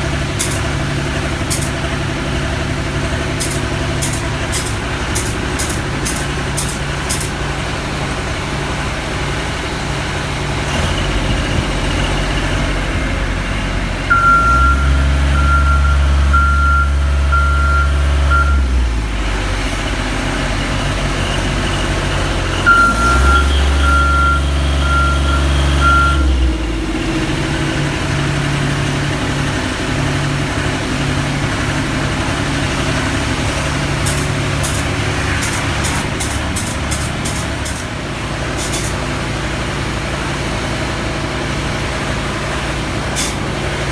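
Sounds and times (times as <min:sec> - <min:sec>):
heavy vehicle engine running: 0:00.0 - 0:43.9
backup alarm beeping: 0:14.1 - 0:18.8, 0:22.6 - 0:26.4.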